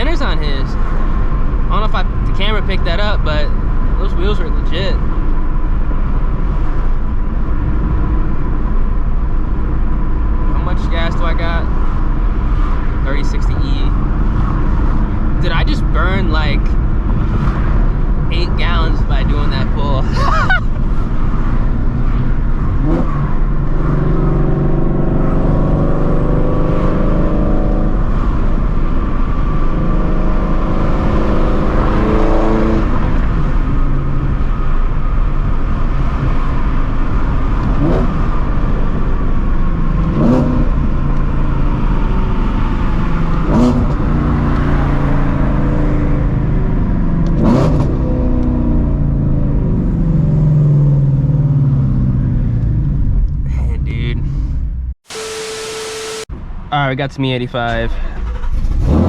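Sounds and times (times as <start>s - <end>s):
loud car engine drone while driving: 0.0s - 57.0s, 57.7s - 59.0s
sharp engine revs: 55.0s - 56.3s, 58.2s - 59.0s.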